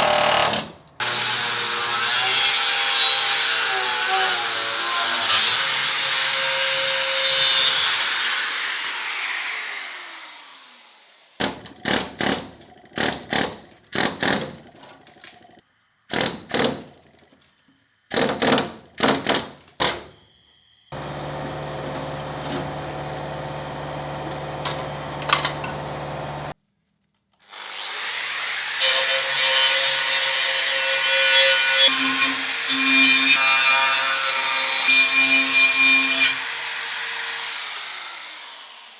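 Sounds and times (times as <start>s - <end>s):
power tool running: 20.9s - 26.6s, 36.3s - 38.9s
steady machine hum: 21.0s - 26.5s.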